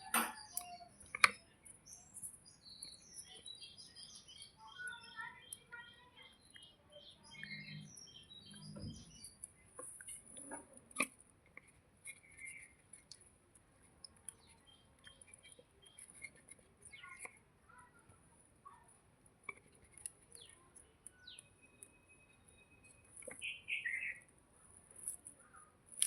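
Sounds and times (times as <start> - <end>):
small birds chirping: 0.0 - 26.0
small clicks: 0.4 - 1.6.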